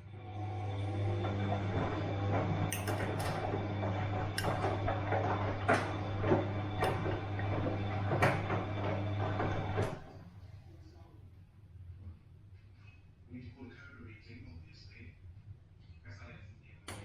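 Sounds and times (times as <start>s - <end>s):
washing machine motor hum: 0.0s - 10.5s.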